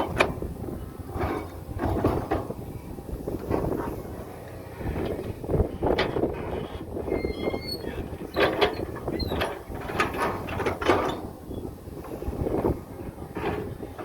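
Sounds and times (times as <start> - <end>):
heavy machinery engine running: 0.0 - 14.0
metallic clanks and knocks: 1.1 - 2.6, 8.0 - 11.4, 12.0 - 14.0
faint squeal: 6.5 - 8.1.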